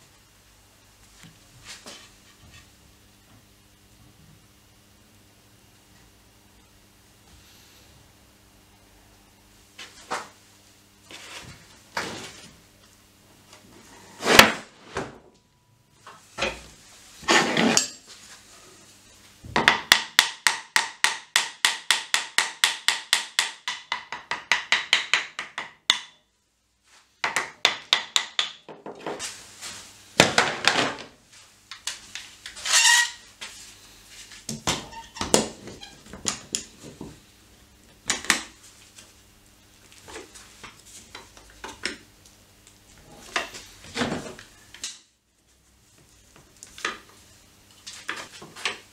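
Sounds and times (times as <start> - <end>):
hammer tapping wood strips: 19.6 - 26.2, 27.2 - 29.1.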